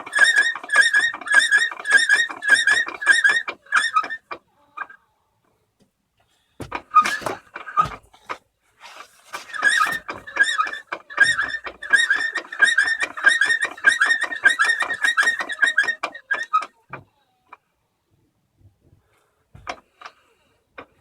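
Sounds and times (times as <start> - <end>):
joint squeaking in high chirps: 9.5 - 16.7.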